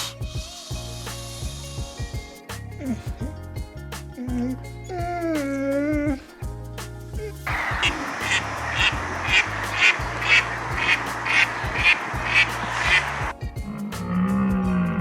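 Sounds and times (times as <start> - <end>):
rough hiss: 0.0 - 15.0
duck quacking: 7.5 - 13.3.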